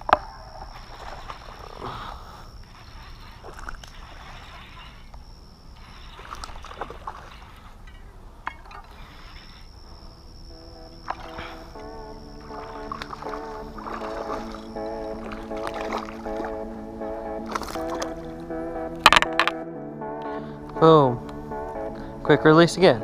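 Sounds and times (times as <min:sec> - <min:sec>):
frogs croaking: 0:00.0 - 0:23.0
high-pitched whine: 0:09.6 - 0:23.0
music: 0:10.5 - 0:23.0.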